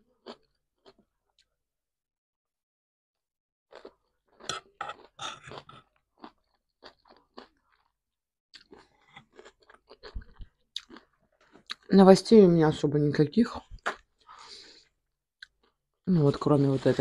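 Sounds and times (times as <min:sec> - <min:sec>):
person chewing crunchy salad: 0:00.2 - 0:01.0, 0:03.7 - 0:08.0, 0:08.6 - 0:11.9, 0:15.4 - 0:16.8.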